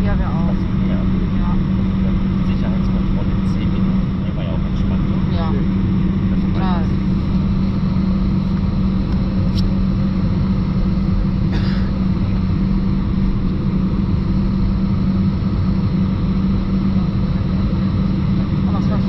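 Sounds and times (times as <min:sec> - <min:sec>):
jet engines idling in cabin: 0:00.0 - 0:19.0.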